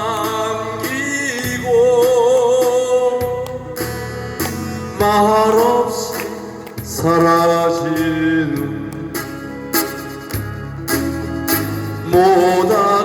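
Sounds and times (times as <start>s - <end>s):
man singing a slow ballad: 0.0s - 4.1s, 4.7s - 9.4s, 12.0s - 13.0s
backing music: 0.0s - 13.0s.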